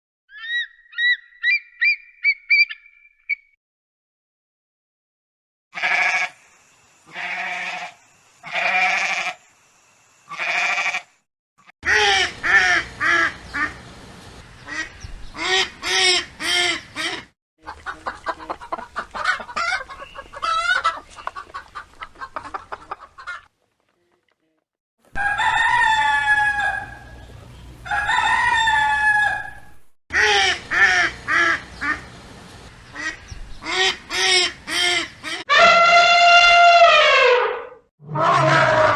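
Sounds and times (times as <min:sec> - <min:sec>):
hens clucking and cackling: 0:15.4 - 0:23.5, 0:25.1 - 0:32.1
rooster crowing: 0:25.1 - 0:27.2, 0:27.8 - 0:29.8.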